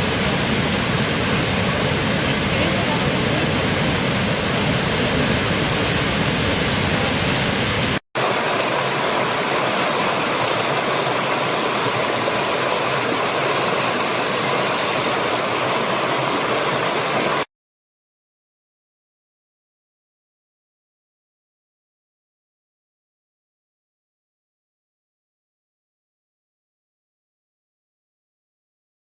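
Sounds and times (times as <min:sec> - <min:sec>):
waterfall rushing: 0:00.0 - 0:17.5.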